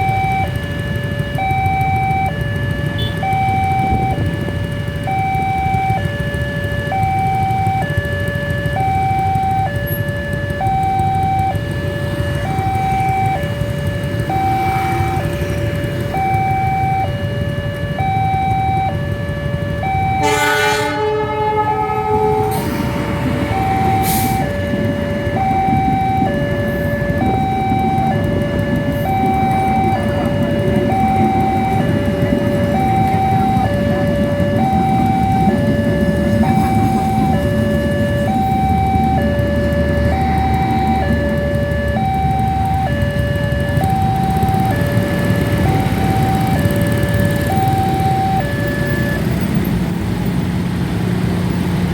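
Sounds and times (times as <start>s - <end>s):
two-tone crossing alarm: 0.0s - 50.4s
train horn: 20.1s - 24.5s.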